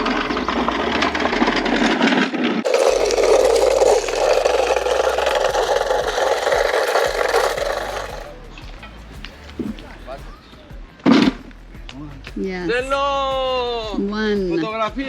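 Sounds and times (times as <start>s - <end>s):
cart rattling over rough pavement: 0.0s - 10.6s.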